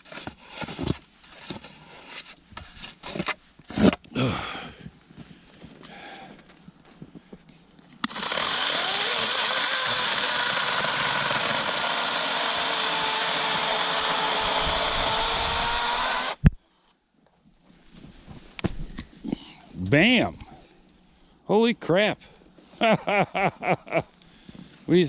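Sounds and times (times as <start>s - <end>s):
electric chainsaw cutting log: 8.0s - 16.5s.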